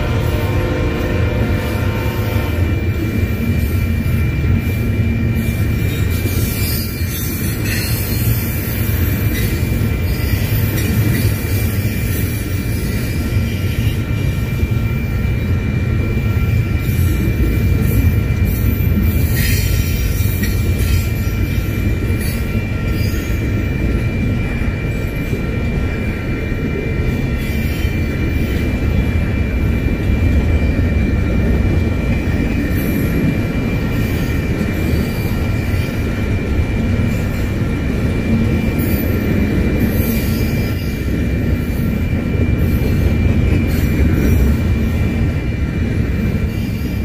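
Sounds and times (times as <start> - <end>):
steel wheels rumbling on rail: 0.0 - 47.0.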